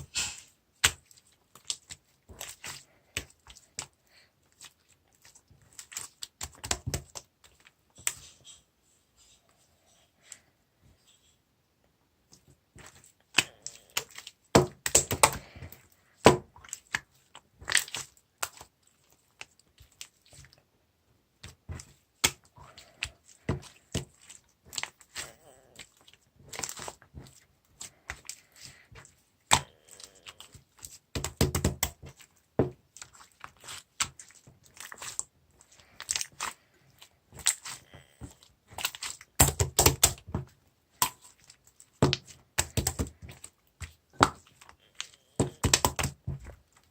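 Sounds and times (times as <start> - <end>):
slime clicking and popping: 38.8 - 40.4, 42.0 - 43.2.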